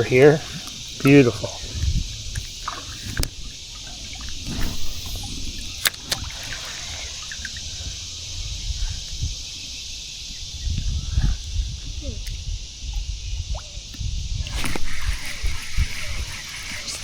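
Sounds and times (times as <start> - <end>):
creek water rushing: 0.0 - 8.3.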